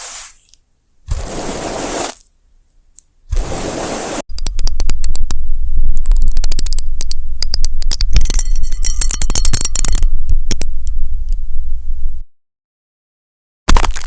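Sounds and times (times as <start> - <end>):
sharp clicks and crackles: 4.3 - 11.4
low hum: 4.3 - 12.2.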